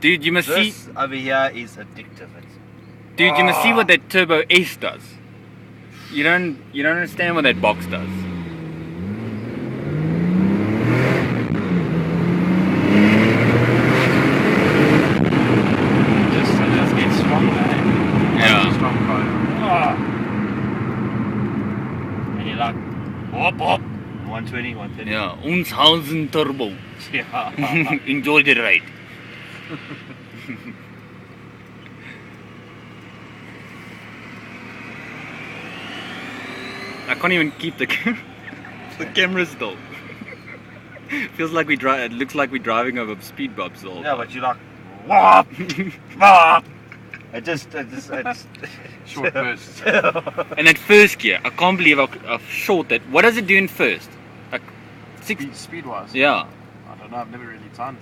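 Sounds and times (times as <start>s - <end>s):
car engine accelerating hard: 0.0s - 58.0s
turbo whine: 5.4s - 45.6s.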